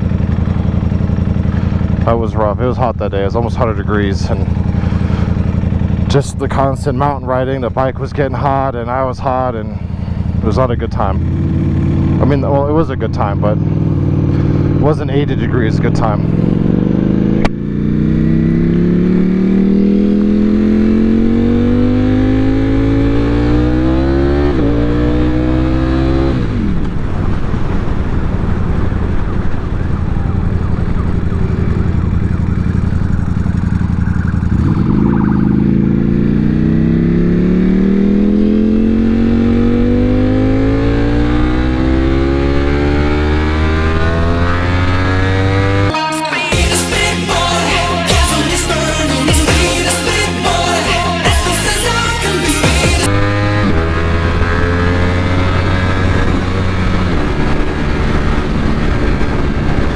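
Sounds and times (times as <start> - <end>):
motorcycle engine accelerating: 0.0 - 59.9
wind rush: 26.4 - 39.5, 53.1 - 59.9.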